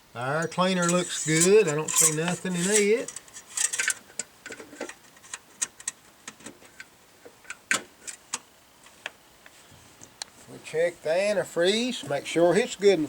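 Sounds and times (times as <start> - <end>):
hard parts clicking and tapping: 0.4 - 8.4.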